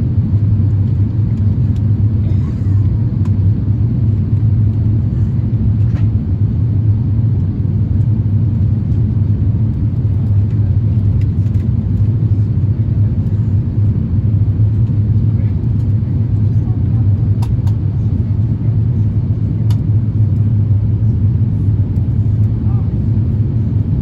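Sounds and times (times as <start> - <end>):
airplane cabin rumble: 0.0 - 24.0.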